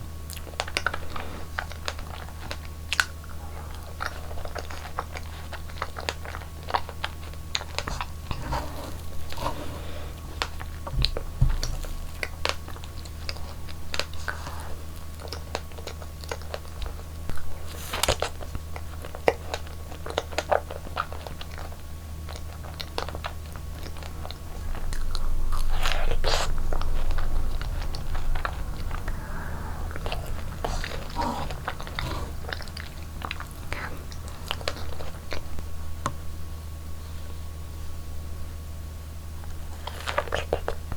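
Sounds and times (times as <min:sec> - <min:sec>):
chewing and crunching: 0:00.0 - 0:36.2, 0:39.4 - 0:40.9
steady low hum: 0:00.0 - 0:40.9.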